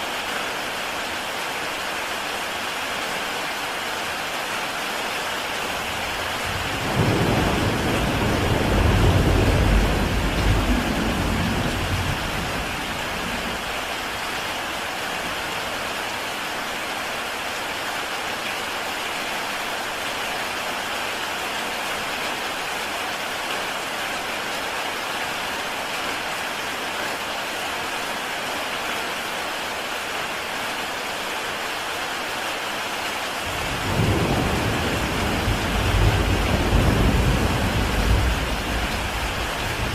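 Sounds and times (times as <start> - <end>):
heavy rain on a tile roof: 0.0 - 39.9
thunder rumbling: 5.8 - 13.8, 33.5 - 39.9.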